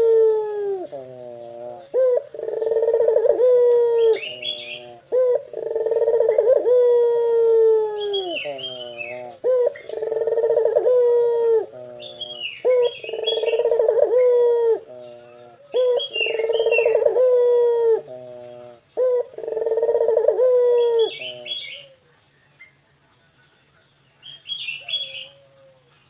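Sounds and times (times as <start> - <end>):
dove cooing: 0.0 - 22.1, 24.4 - 26.0
small birds chirping: 0.6 - 26.0.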